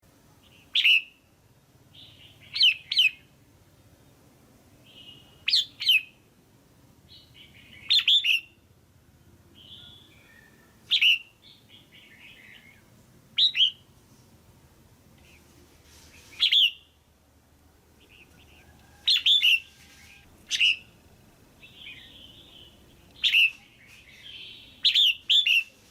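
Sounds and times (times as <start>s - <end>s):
bird chirping: 0.4s - 1.3s, 1.9s - 3.4s, 4.8s - 6.3s, 7.1s - 13.9s, 15.2s - 17.0s, 17.9s - 25.9s
soft bird warbling: 15.2s - 16.9s, 18.0s - 21.0s, 21.6s - 25.9s.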